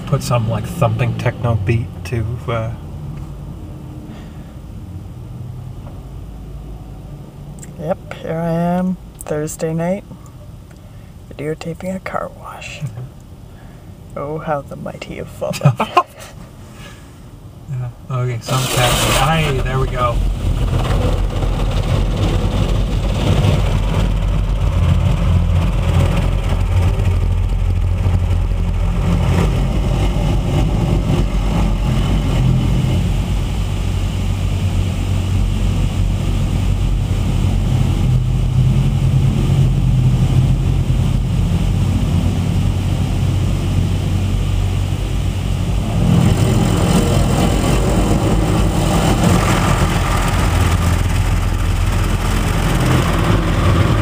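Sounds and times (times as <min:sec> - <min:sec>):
car wash machinery rumble: 0:00.0 - 0:54.0
car engine idling: 0:08.2 - 0:54.0
loud hiss: 0:18.5 - 0:20.6.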